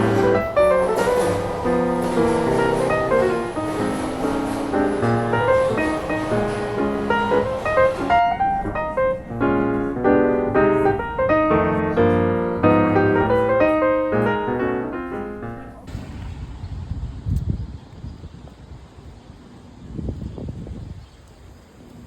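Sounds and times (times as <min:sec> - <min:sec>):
wind buffeting microphone: 0:00.0 - 0:14.5, 0:15.6 - 0:22.0
gentle piano music: 0:00.0 - 0:15.9.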